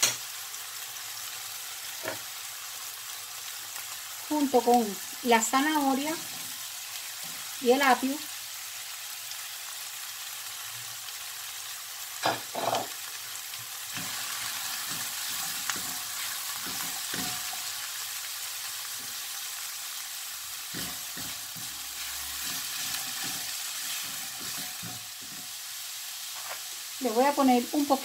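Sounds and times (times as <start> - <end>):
vegetables sizzling in oil: 0.0 - 28.0
spatula stirring and scraping: 13.5 - 17.8, 20.6 - 25.6.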